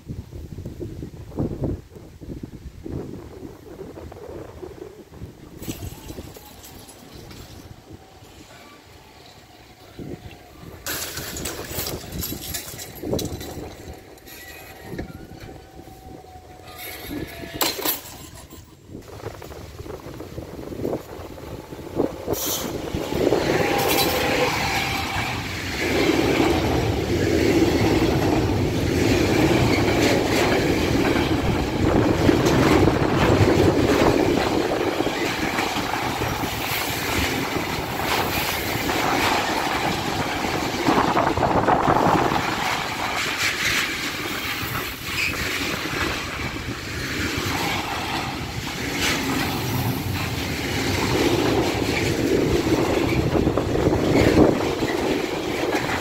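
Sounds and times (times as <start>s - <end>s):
freight train passing: 2.9s - 56.0s
train wheel clicks: 10.7s - 15.8s, 20.8s - 56.0s.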